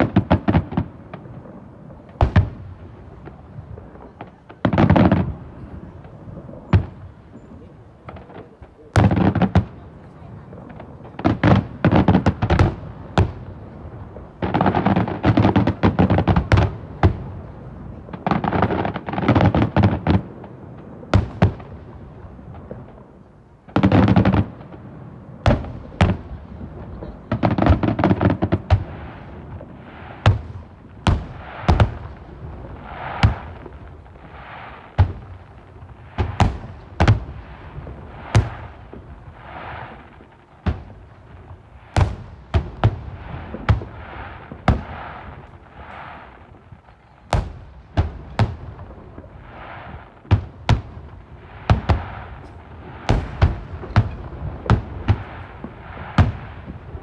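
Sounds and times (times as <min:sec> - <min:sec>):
fireworks bangs: 0:00.0 - 0:57.0
fireworks hisses: 0:27.4 - 0:46.7, 0:47.3 - 0:57.0.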